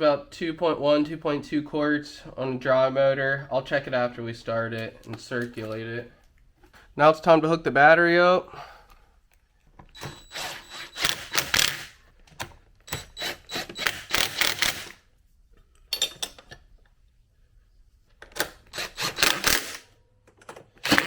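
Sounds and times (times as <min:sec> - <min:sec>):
hand tools clicking and clattering: 0:15.9 - 0:16.7.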